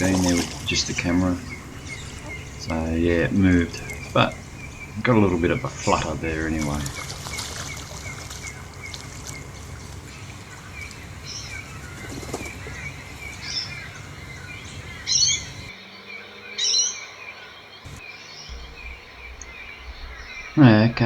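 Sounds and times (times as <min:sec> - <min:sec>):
birds peeping softly: 0:00.0 - 0:21.0
sharp bird calls: 0:00.0 - 0:21.0.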